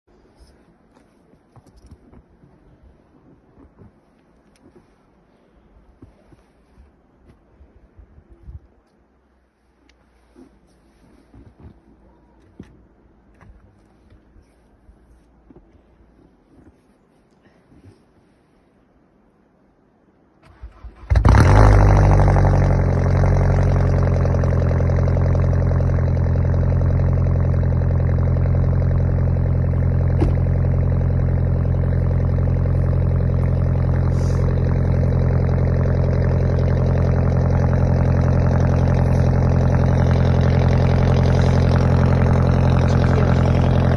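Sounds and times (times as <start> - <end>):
car engine cranking and idling: 20.4 - 43.9.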